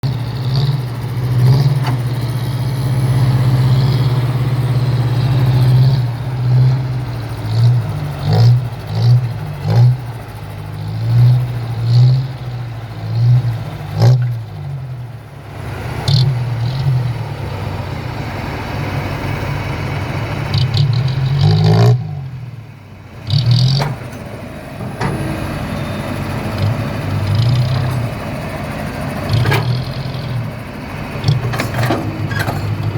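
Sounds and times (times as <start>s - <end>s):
heavy diesel engine revving: 0.0s - 32.9s
metallic clanks: 31.2s - 32.9s.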